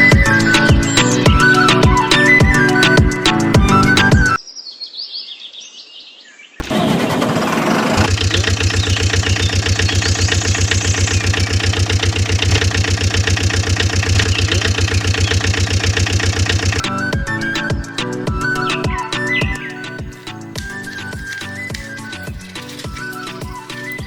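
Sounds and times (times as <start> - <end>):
birds chirping: 0.0 - 6.7, 8.0 - 24.0
small engine running: 6.6 - 16.8.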